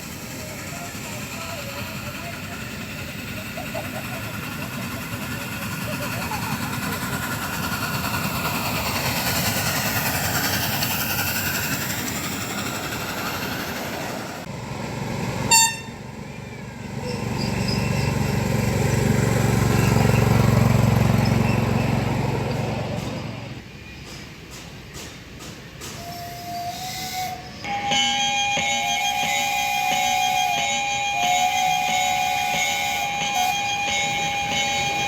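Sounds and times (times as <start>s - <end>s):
miniature steam train running: 0.0s - 35.0s
steam whistle toot: 15.5s - 16.0s, 26.0s - 35.0s.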